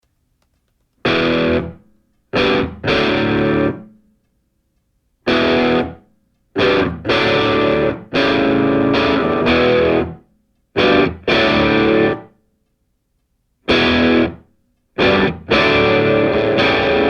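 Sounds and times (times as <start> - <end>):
distorted electric guitar chords: 1.0 - 1.8, 2.4 - 4.0, 5.3 - 6.0, 6.6 - 10.2, 10.8 - 12.3, 13.7 - 17.0.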